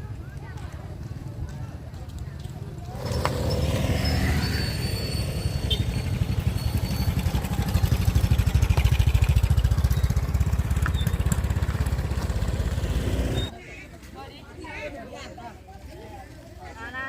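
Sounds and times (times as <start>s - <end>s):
motorbike engine running: 2.9s - 13.5s.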